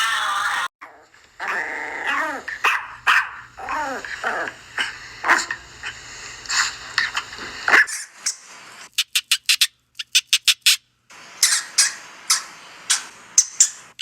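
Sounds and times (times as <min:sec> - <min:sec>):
dog barking: 0:01.4 - 0:05.6, 0:07.7 - 0:08.0
high-pitched chirps and squeaks: 0:08.3 - 0:10.8.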